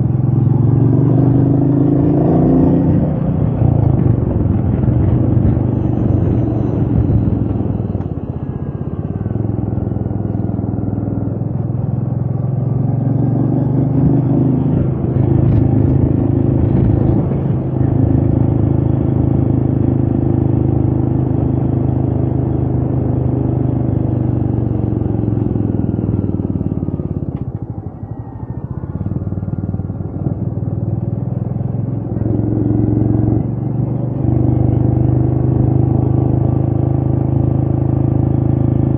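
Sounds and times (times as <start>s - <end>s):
motorcycle engine running: 0.0s - 38.9s
wind noise on microphone: 2.9s - 9.2s, 14.2s - 19.8s.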